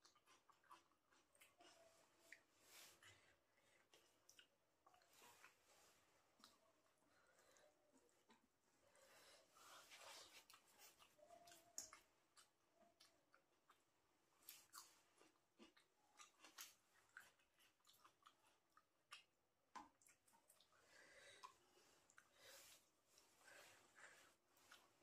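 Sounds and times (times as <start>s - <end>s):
person chewing with mouth clicks: 0.0s - 5.7s, 10.0s - 20.8s.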